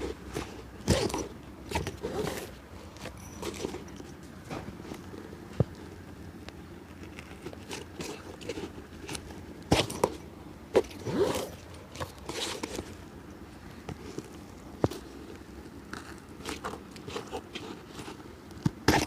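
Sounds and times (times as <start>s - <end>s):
scraping and rustling: 0.0s - 19.0s.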